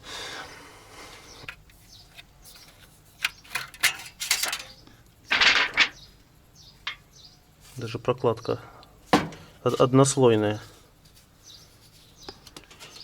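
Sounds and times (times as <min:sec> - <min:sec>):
metal tools clinking: 0:02.5 - 0:06.0.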